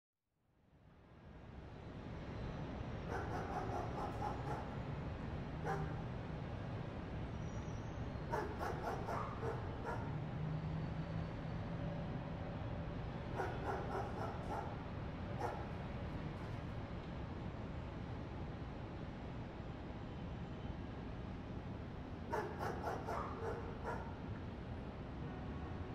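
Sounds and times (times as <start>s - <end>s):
dog barking: 3.1s - 4.8s, 5.6s - 6.1s, 8.3s - 10.2s, 13.3s - 14.8s, 15.4s - 15.8s, 22.3s - 24.2s.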